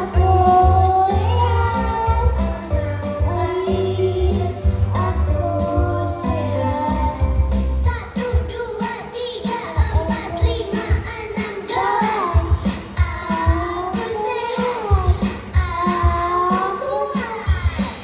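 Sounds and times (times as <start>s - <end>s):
backing music with bass: 0.0s - 8.0s
children singing together: 0.0s - 18.0s.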